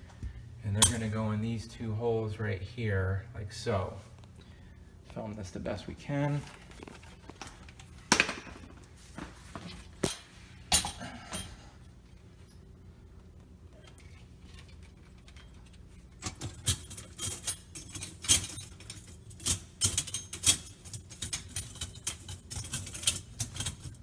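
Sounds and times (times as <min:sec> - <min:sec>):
dishwasher rack rattling: 0:16.2 - 0:24.0.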